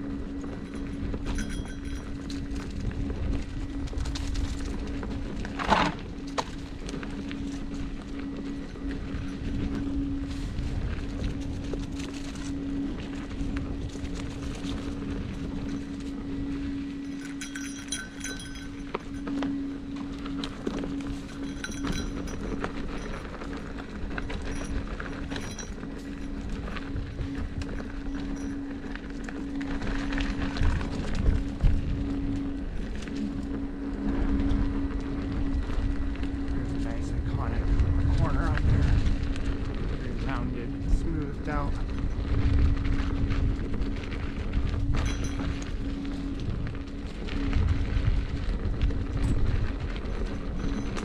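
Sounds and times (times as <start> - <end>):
electric motor hum: 0.0 - 51.0
tyre and wind rumble: 0.0 - 51.0.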